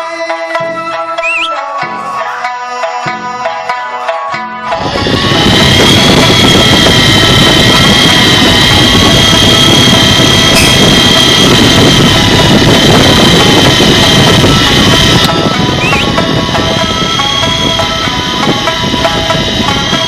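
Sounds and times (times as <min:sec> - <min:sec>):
steady high whine: 0:04.6 - 0:20.0
boat engine running: 0:04.7 - 0:20.0.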